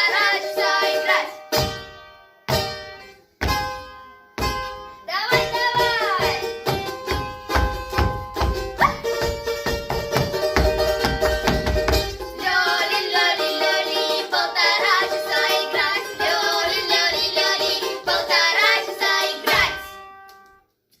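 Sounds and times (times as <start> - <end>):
voices singing with vibrato: 0.0 - 1.4, 12.2 - 19.9.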